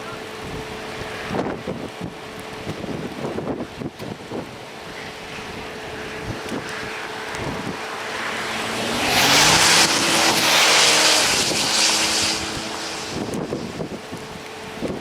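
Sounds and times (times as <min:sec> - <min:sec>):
car passing close by: 0:05.1 - 0:14.2.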